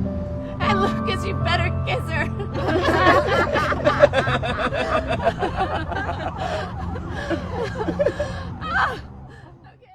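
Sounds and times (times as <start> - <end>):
people laughing: 2.4 - 9.7.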